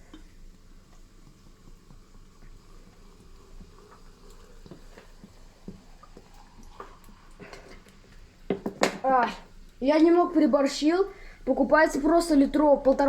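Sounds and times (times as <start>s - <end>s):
fizzing ticks: 0.0s - 7.3s
soda pouring into a jug: 0.0s - 8.8s.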